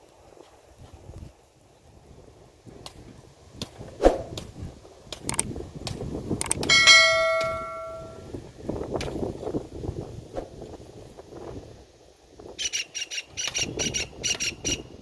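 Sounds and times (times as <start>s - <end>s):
struck metal ringing: 6.6s - 8.2s.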